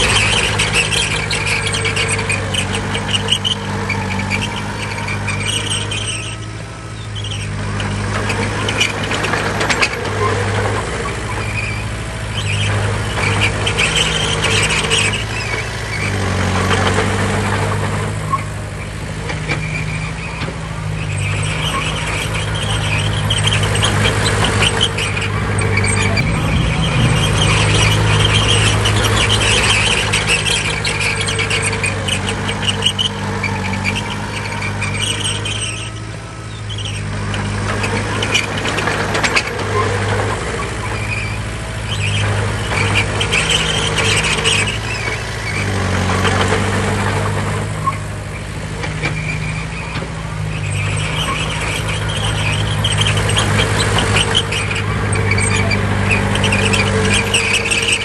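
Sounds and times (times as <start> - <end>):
bulldozer diesel engine running: 0.0 - 58.0
high-pitched squeal: 21.0 - 37.0, 50.6 - 58.0.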